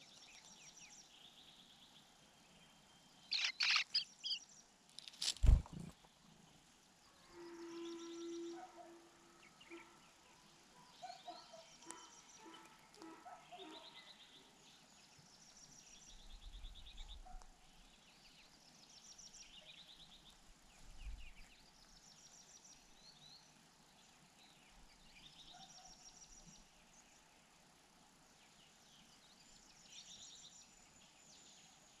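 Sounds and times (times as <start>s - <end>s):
small birds trilling: 0.0s - 4.7s, 9.4s - 22.1s.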